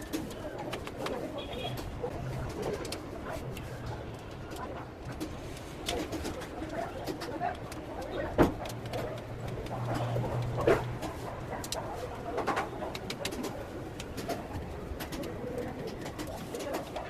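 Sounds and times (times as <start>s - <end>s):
birds cooing: 11.6s - 17.0s.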